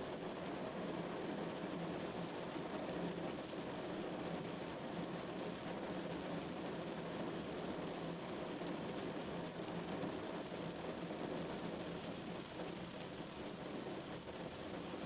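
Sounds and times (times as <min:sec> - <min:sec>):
rain falling on a car: 0:00.0 - 0:15.0.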